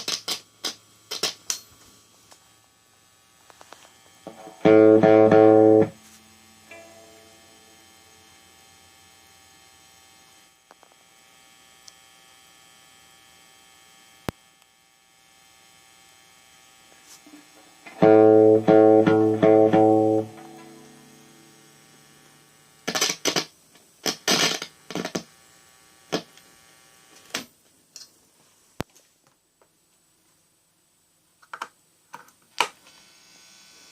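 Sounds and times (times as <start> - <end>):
amplifier mains hum: 0.0 - 33.9
electric guitar chord strummed: 4.3 - 8.6, 17.8 - 23.2.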